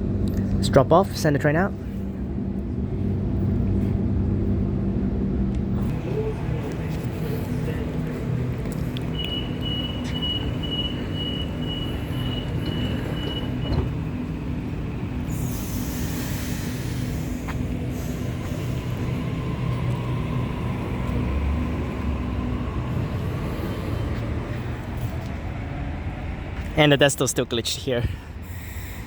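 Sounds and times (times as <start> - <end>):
train motor whine: 1.9 - 26.7
high pulsing beep: 9.1 - 13.8
air hissing: 15.2 - 20.1.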